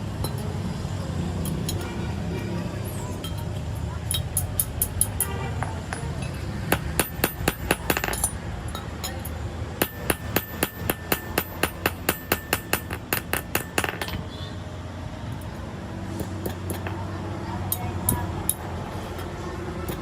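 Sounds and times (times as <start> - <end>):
hammer striking metal: 6.7 - 8.4, 9.0 - 14.3.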